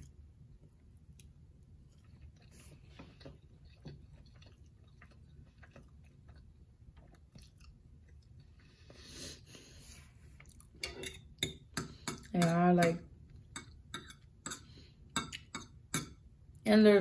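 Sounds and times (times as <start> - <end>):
chewing with wet mouth clicks: 0.0 - 8.7, 10.4 - 10.8, 13.3 - 16.1.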